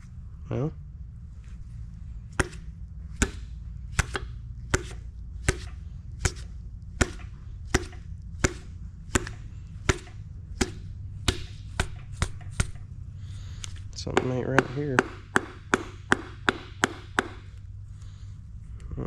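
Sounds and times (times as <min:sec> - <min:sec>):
mallet tapping metal: 0:02.4 - 0:12.8, 0:14.0 - 0:17.6.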